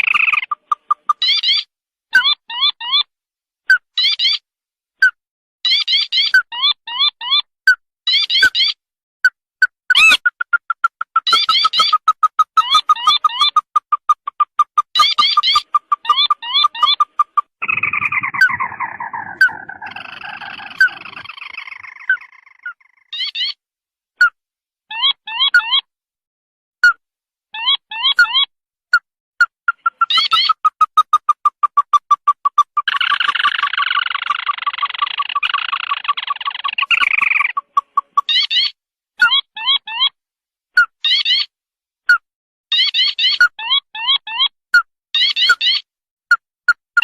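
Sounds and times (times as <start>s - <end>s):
bird bending squawks: 0.0s - 1.6s, 9.9s - 23.6s, 29.7s - 38.7s
crake calls: 0.0s - 1.6s, 9.9s - 23.4s, 29.7s - 38.7s
bird rapid chattering trill: 0.0s - 3.0s, 9.9s - 23.6s, 29.4s - 40.0s.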